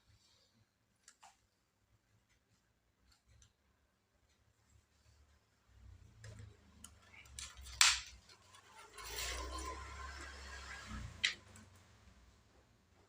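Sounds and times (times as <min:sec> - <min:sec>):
scraping or rubbing: 0:06.9 - 0:11.9
clicks of laptop parts handled: 0:07.4 - 0:08.2.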